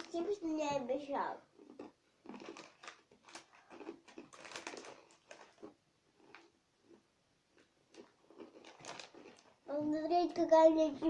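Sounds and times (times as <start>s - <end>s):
crisps crunching: 1.6s - 9.7s.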